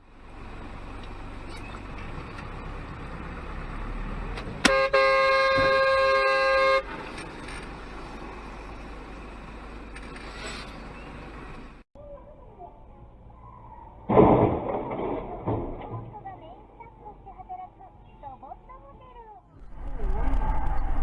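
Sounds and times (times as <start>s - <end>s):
road and engine rumble: 0.0s - 21.0s
car horn: 4.6s - 7.0s.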